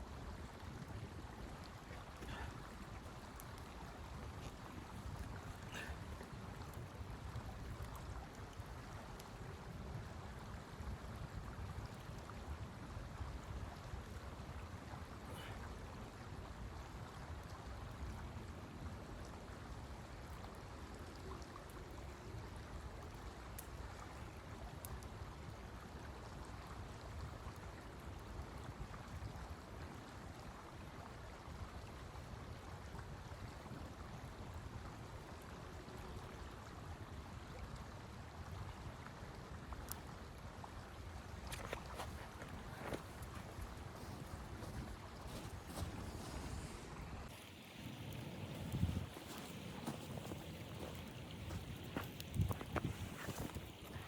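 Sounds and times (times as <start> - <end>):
blizzard wind gusting: 42.0 - 54.0.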